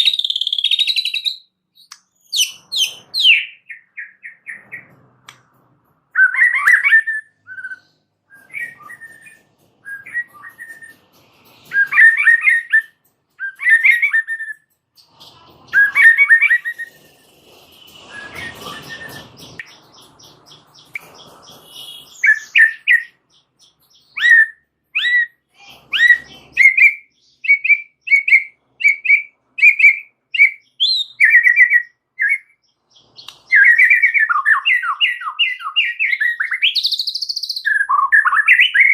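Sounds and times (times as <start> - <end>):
bird whistled notes: 6.2 - 11.0, 11.7 - 14.6, 15.7 - 17.3, 17.9 - 23.2.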